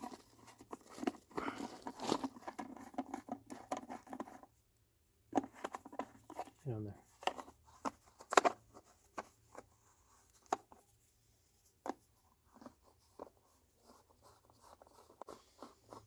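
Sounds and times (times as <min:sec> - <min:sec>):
plastic clicks taps and scrapes: 0:05.3 - 0:09.7, 0:10.3 - 0:10.8.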